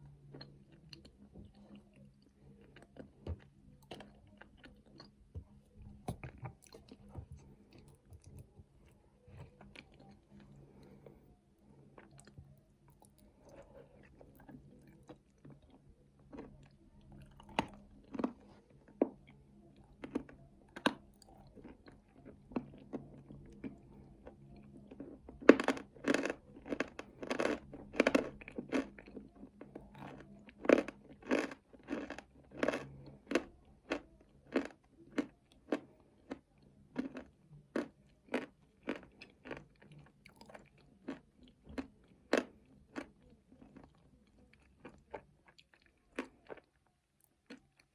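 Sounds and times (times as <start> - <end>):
person chewing nuts: 0.1 - 47.9.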